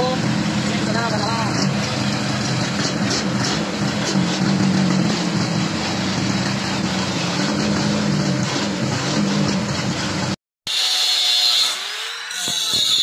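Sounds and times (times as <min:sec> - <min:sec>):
engine running: 0:00.0 - 0:10.4.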